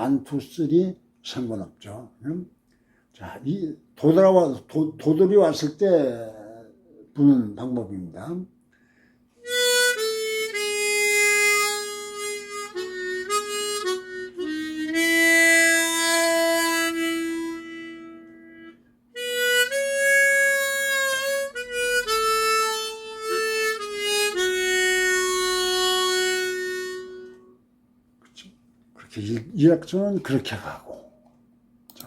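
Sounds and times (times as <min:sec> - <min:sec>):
harmonica slow melody: 0:08.7 - 0:28.5.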